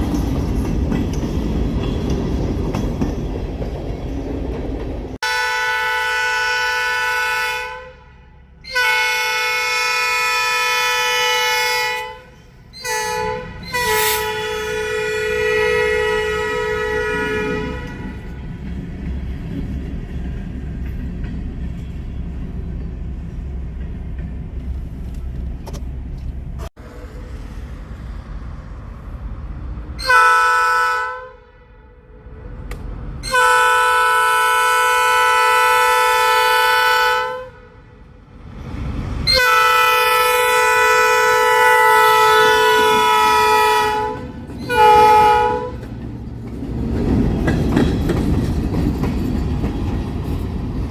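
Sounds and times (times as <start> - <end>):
locomotive horn blasts: 5.2 - 18.4, 30.0 - 32.3, 33.2 - 37.8, 39.3 - 45.9.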